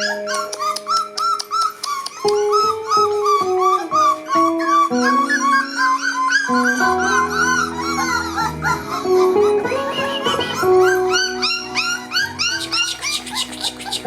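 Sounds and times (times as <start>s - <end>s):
background music: 0.0s - 14.0s
puppies whining and yipping: 0.0s - 14.0s.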